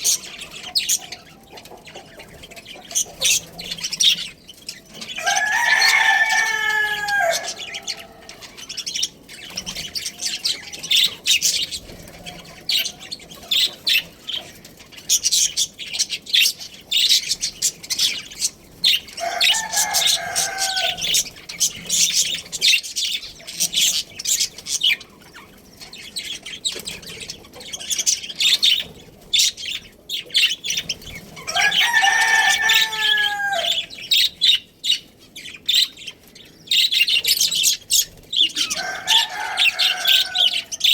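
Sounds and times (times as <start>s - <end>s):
budgerigars chirping: 0.0s - 40.9s
rooster crowing: 5.1s - 8.8s, 19.1s - 21.4s, 31.4s - 34.3s, 38.4s - 40.9s.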